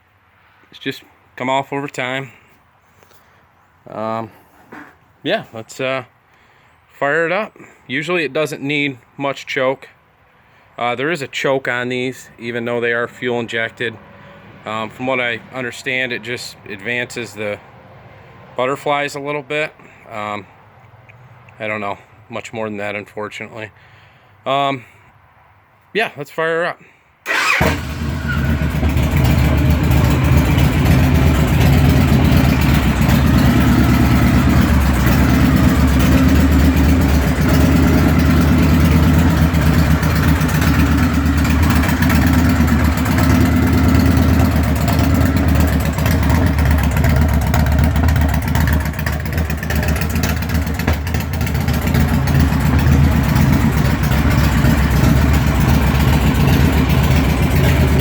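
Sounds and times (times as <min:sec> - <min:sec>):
motorcycle engine idling: 0:27.3 - 0:58.0.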